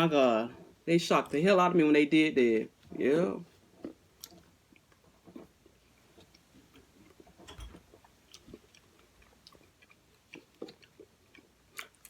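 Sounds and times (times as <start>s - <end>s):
person chewing: 2.7s - 12.0s.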